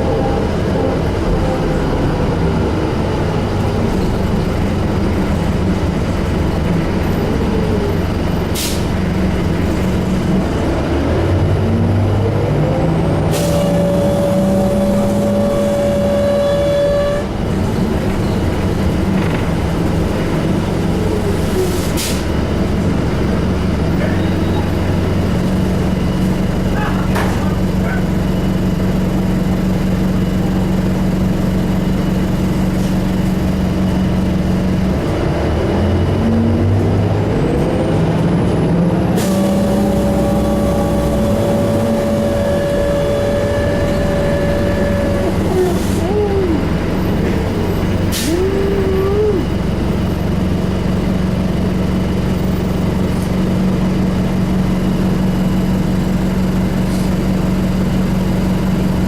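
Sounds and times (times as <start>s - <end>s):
diesel bus engine idling and revving: 0.0s - 59.0s
air brake hissing: 8.5s - 9.0s, 13.3s - 13.7s, 21.5s - 22.3s, 48.0s - 48.5s
squealing: 39.8s - 46.7s.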